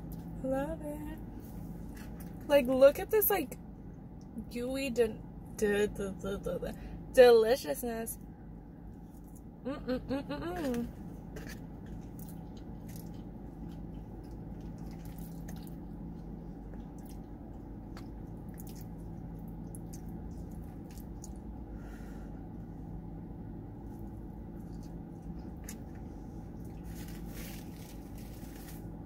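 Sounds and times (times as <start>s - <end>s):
low hum inside car: 0.0s - 29.0s
person chewing: 11.3s - 21.6s, 23.8s - 28.7s.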